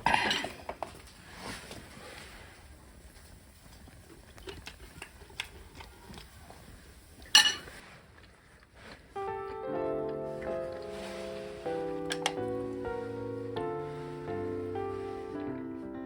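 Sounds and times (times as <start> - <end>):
utensils and dishes clinking: 0.1 - 0.8, 7.3 - 7.8
background music: 9.2 - 16.0.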